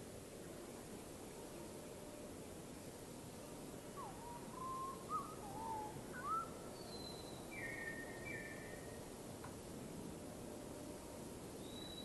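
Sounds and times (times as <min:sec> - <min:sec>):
faint steady hiss: 0:00.0 - 0:12.0
bird whistling: 0:04.6 - 0:08.6.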